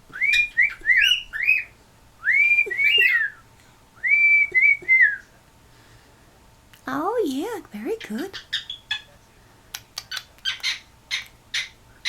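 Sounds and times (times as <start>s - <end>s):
cockatiel whistling a tune: 0.1s - 3.4s.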